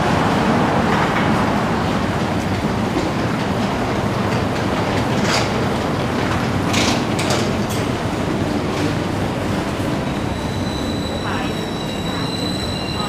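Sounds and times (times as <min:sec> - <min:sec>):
electric train rumbling: 0:00.0 - 0:13.0.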